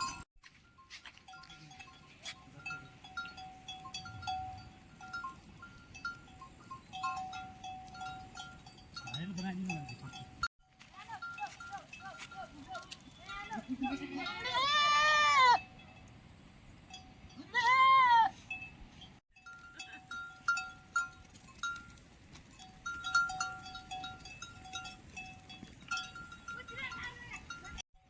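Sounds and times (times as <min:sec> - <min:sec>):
small metal bells clinking: 0:00.0 - 0:16.2, 0:18.5 - 0:28.0
livestock bleating: 0:13.4 - 0:15.6.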